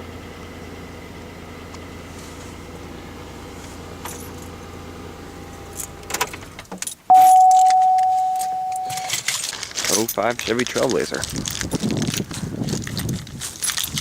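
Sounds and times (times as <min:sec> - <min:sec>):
car engine idling: 0:00.0 - 0:09.1
keys jingling and clicking: 0:06.9 - 0:14.0
loud ding: 0:07.1 - 0:09.2.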